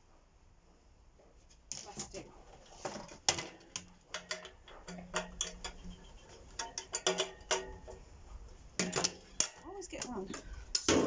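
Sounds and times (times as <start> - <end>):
clicks and clinks of tools and parts: 3.3 - 8.0.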